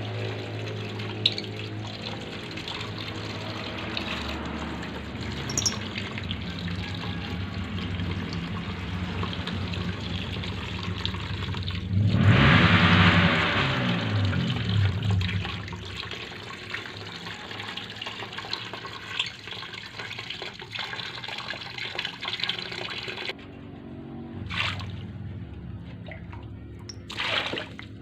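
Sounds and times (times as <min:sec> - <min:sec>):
low hum: 0:00.0 - 0:16.2
running water: 0:00.0 - 0:23.4, 0:25.9 - 0:28.0.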